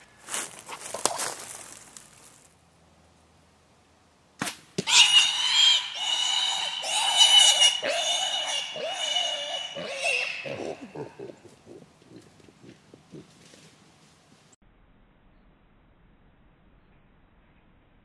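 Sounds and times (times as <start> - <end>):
hog squealing: 4.9 - 12.8.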